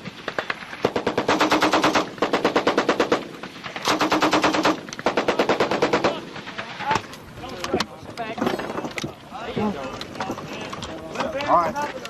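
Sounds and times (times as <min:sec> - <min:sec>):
machine gun firing bursts: 0:00.0 - 0:06.8.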